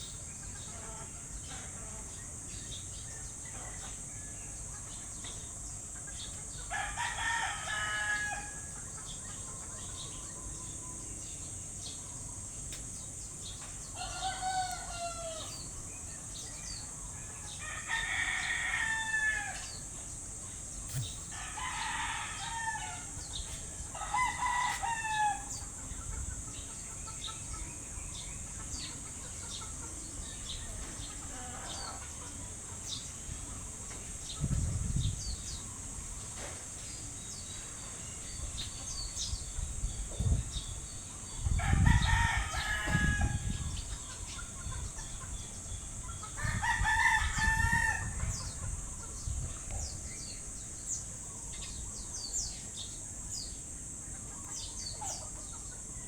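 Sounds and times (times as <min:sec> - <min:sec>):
rooster crowing: 0:06.7 - 0:08.7, 0:14.0 - 0:15.6, 0:17.5 - 0:19.8, 0:20.9 - 0:25.7, 0:41.6 - 0:43.6, 0:46.4 - 0:48.2
steady high hiss: 0:10.8 - 0:41.7.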